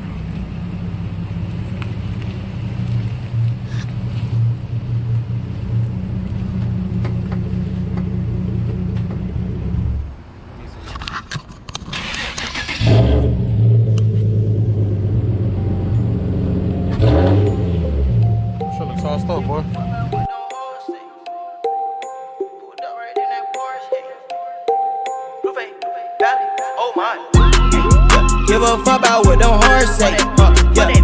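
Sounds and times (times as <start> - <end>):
car engine idling: 0.0 - 10.7, 12.0 - 20.3, 27.4 - 31.0
engine clattering: 0.0 - 20.2.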